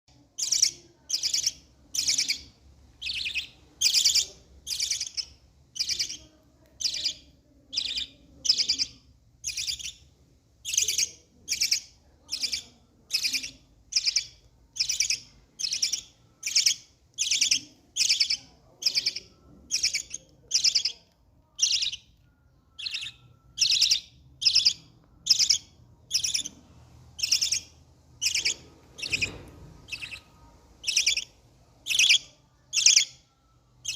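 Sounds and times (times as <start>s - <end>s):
baby parrot begging calls: 6.8s - 10.0s, 10.7s - 21.0s, 22.8s - 26.5s, 27.2s - 33.2s.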